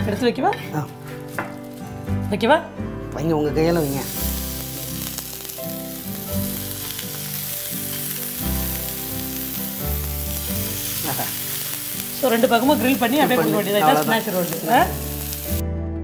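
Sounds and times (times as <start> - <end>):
background music: 0.0 - 16.0
food sizzling in hot oil: 3.6 - 15.6.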